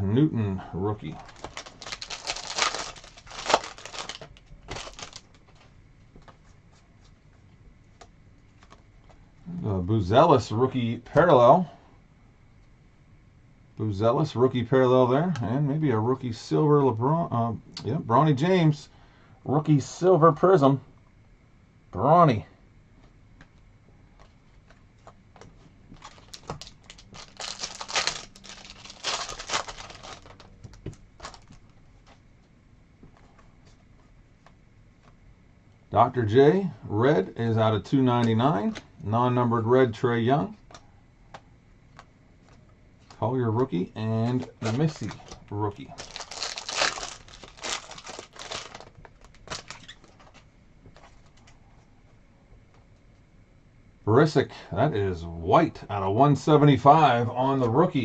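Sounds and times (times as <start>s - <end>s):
trading cards clicking and rustling: 1.2s - 6.3s, 24.2s - 32.2s, 46.0s - 51.6s.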